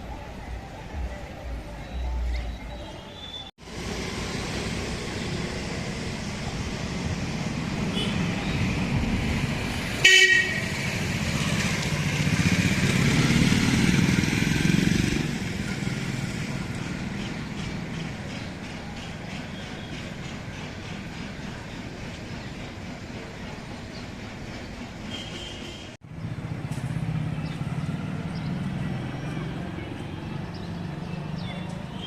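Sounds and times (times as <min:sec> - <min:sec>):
road traffic passing: 0:00.0 - 0:32.0
vehicle horn toot: 0:07.9 - 0:08.3, 0:10.0 - 0:10.8, 0:25.1 - 0:26.0.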